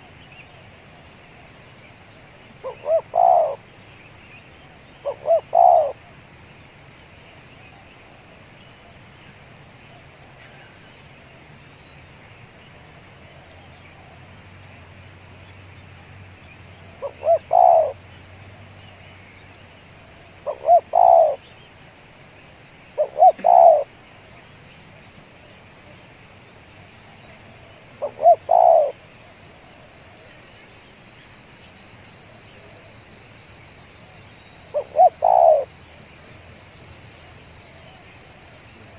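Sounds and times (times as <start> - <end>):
dove cooing: 2.6 - 3.7, 5.0 - 6.0, 17.0 - 18.0, 20.4 - 21.4, 23.0 - 23.9, 28.0 - 29.0, 34.7 - 35.7.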